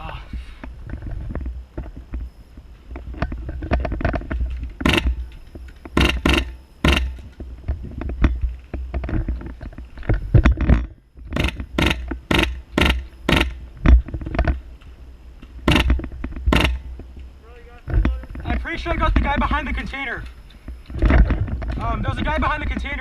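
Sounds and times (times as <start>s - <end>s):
knocks and scrapes: 0.6s - 14.7s.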